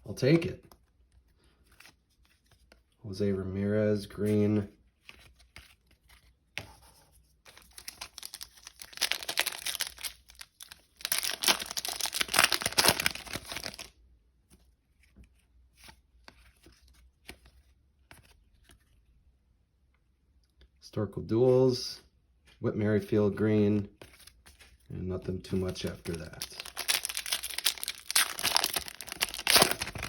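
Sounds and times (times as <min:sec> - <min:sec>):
foil wrapper tearing and crinkling: 0:07.6 - 0:13.9, 0:26.1 - 0:30.0.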